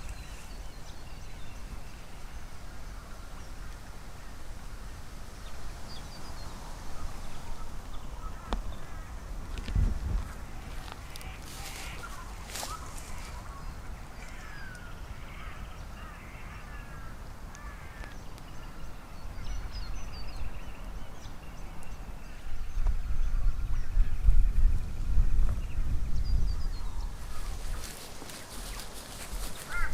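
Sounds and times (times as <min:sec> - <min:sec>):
birds chirping: 0:00.0 - 0:04.8, 0:05.4 - 0:29.9
harsh bird calls: 0:10.2 - 0:24.4, 0:25.3 - 0:29.9.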